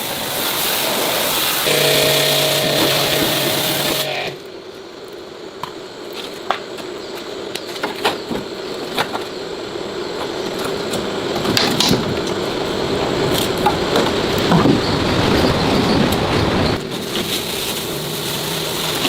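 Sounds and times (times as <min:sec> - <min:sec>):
machine running: 0:01.3 - 0:04.5.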